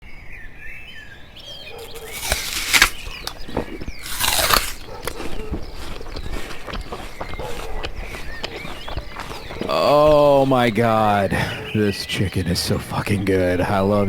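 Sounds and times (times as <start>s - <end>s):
small birds chirping: 0.0s - 14.0s
rustling and crunching: 1.7s - 11.1s.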